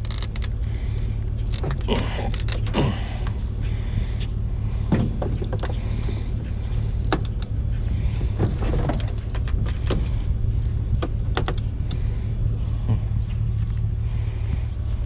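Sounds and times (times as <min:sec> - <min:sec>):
short rattles and clicks: 0:00.0 - 0:03.7, 0:08.4 - 0:12.0
vehicle engine rumbling: 0:00.0 - 0:15.0.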